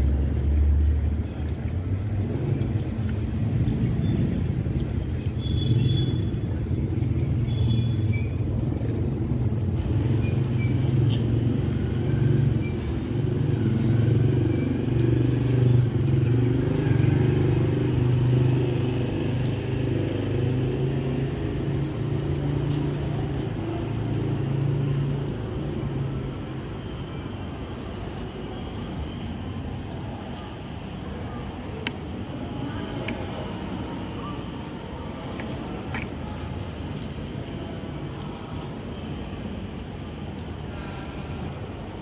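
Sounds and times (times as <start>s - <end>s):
road traffic rumble: 0.0s - 42.0s.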